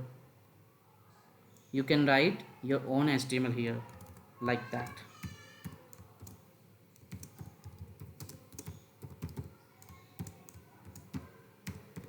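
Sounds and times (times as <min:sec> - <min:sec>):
typing on computer keyboard: 0:03.8 - 0:06.4, 0:07.0 - 0:12.0.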